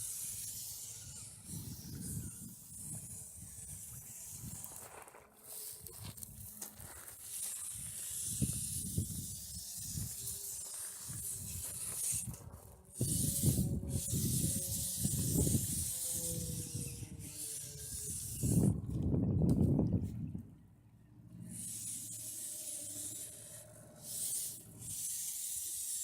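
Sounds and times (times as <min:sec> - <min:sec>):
small electric motor whine: 0:00.0 - 0:20.3, 0:21.3 - 0:26.0
wind buffeting microphone: 0:01.4 - 0:04.8, 0:07.7 - 0:10.4, 0:11.0 - 0:20.6.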